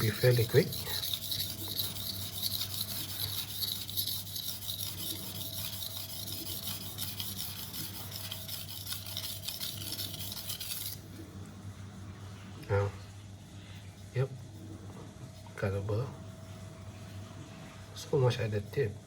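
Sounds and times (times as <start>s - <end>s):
knife grinding on whetstone: 0.0s - 11.1s.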